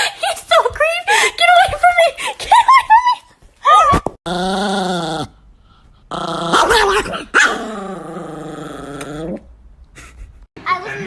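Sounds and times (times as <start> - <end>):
dog growling: 4.3 - 5.4, 6.1 - 9.5.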